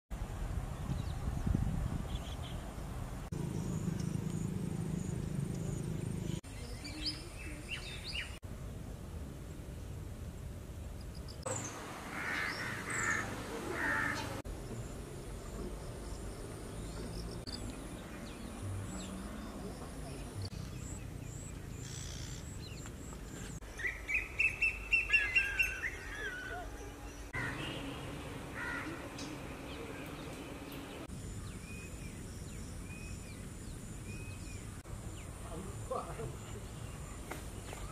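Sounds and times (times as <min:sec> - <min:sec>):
birds chirping and calling: 0:03.4 - 0:08.4, 0:11.4 - 0:14.8, 0:16.0 - 0:35.3.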